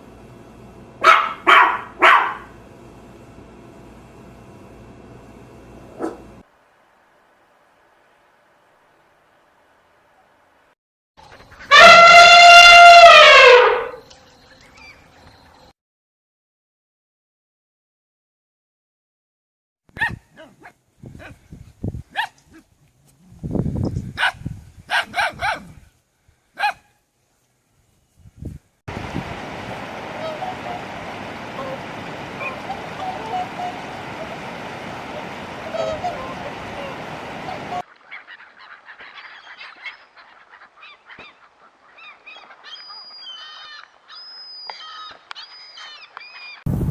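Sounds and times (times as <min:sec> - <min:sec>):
dog barking: 0:01.0 - 0:02.6, 0:06.0 - 0:06.3, 0:20.0 - 0:21.4, 0:22.1 - 0:22.6, 0:24.2 - 0:25.8, 0:26.6 - 0:27.0
steady rushing noise: 0:28.9 - 0:37.8
short high bird calls: 0:35.1 - 0:46.6
whistled bird notes: 0:42.0 - 0:46.7.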